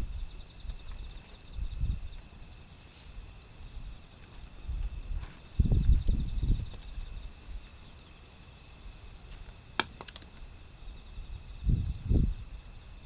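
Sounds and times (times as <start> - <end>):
wind buffeting microphone: 0.0 - 2.3, 3.7 - 7.7, 10.9 - 13.0.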